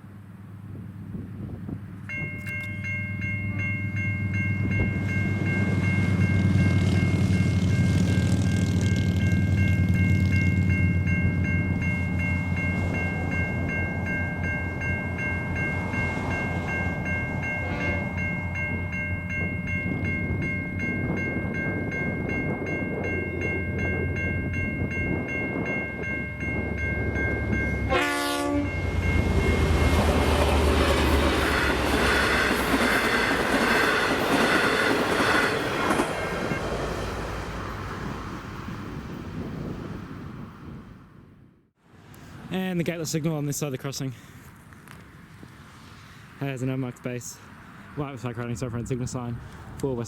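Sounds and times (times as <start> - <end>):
train wheel and rail noise: 0.0 - 41.1
diesel train drone: 0.0 - 46.4
level-crossing bell ringing: 2.1 - 30.7
train horn blast: 17.5 - 18.6, 27.8 - 31.7.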